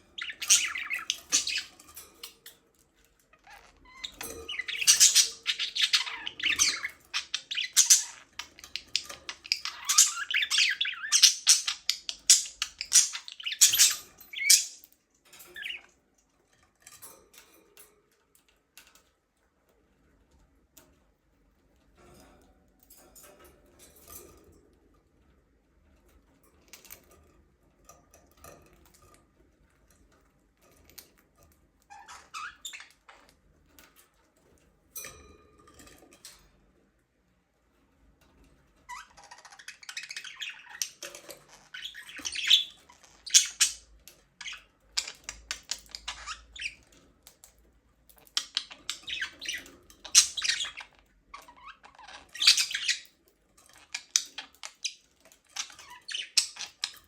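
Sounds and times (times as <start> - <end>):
budgerigars chirping and squawking: 0.0 - 2.4, 3.4 - 14.9, 15.5 - 15.9, 31.9 - 33.3, 38.9 - 47.0, 48.2 - 57.0.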